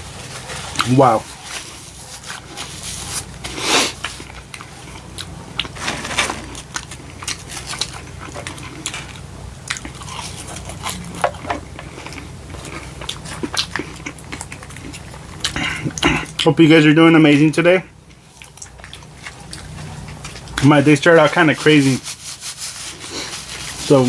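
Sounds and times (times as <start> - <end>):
person chewing crunchy food: 0.0 - 16.5, 18.0 - 20.7.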